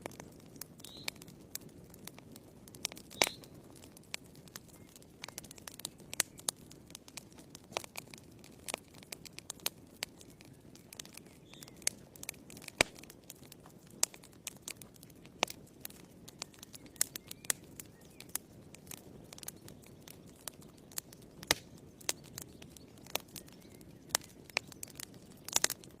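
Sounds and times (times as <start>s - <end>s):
logs crackling in fireplace: 0.0s - 26.0s
low rush of flames: 0.0s - 26.0s.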